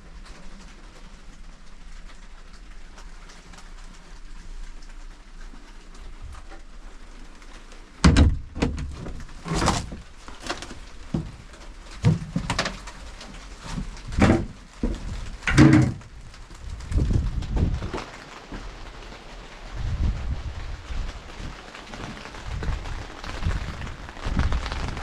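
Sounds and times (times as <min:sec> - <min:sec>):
knocks and thumps: 0:08.0 - 0:16.2.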